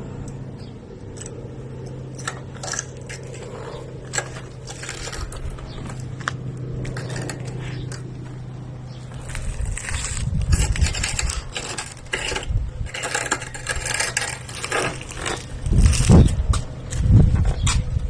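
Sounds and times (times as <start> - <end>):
motor humming: 0.0 - 17.2.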